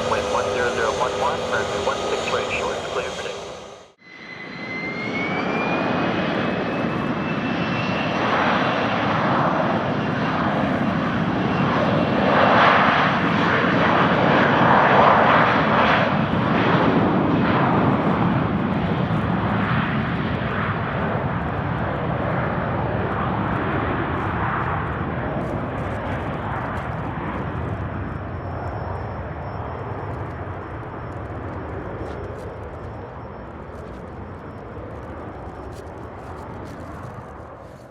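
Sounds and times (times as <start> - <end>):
rushing jet noise: 0.0 - 4.4
jet engine whine: 0.0 - 37.9.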